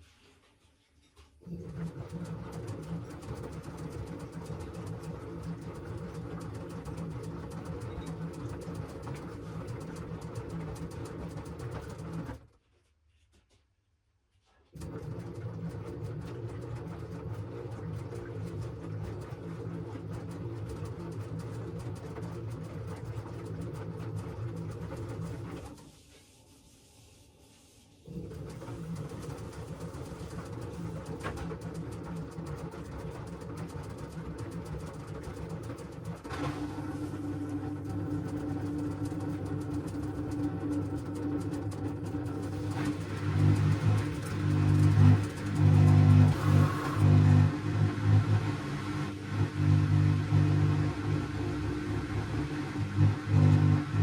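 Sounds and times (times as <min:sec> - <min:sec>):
washing machine motor hum: 0:01.4 - 0:12.3, 0:14.8 - 0:25.8, 0:28.0 - 0:54.0
tumbling drum clicks and sloshing: 0:01.6 - 0:12.3, 0:28.3 - 0:52.2.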